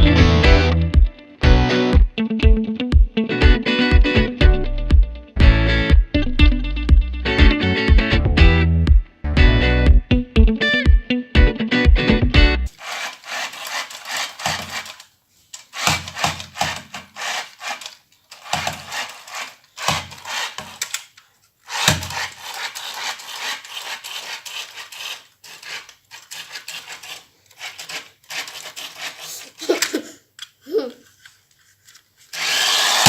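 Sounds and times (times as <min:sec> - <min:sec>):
toys rubbing and scraping: 0:12.7 - 0:20.9, 0:21.7 - 0:29.7.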